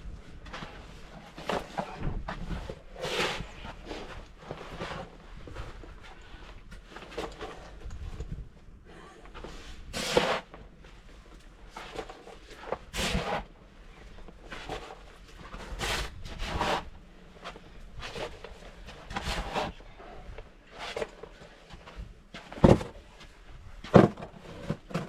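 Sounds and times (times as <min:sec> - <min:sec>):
snow crunching and scraping: 0:11.7 - 0:21.4.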